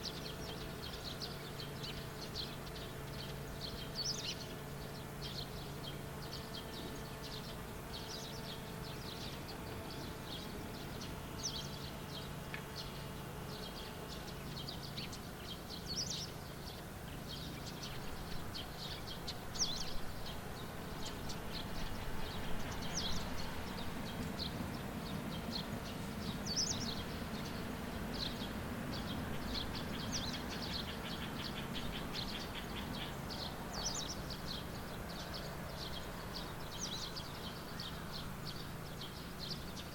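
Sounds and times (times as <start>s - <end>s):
low engine hum: 0.0s - 39.9s
small birds chirping: 0.0s - 39.9s
distant vehicle rumble: 16.7s - 39.8s.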